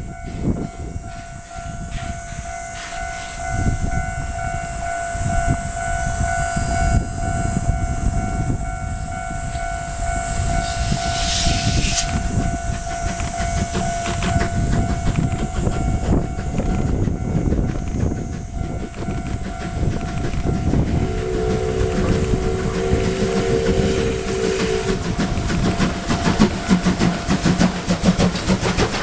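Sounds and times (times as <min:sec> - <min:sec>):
train rumble and rail clatter: 0:00.0 - 0:29.0
steady high tone: 0:07.7 - 0:14.0, 0:19.0 - 0:26.2
hiss burst: 0:10.4 - 0:14.3, 0:20.0 - 0:28.5.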